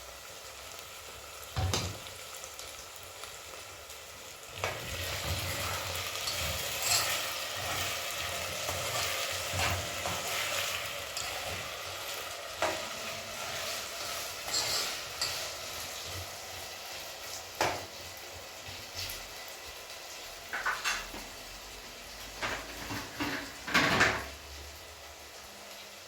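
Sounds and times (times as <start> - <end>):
faint frying sizzle: 0.0 - 26.0
pots and dishes clinking: 1.5 - 2.1, 4.6 - 16.5, 20.5 - 21.4, 22.3 - 24.4.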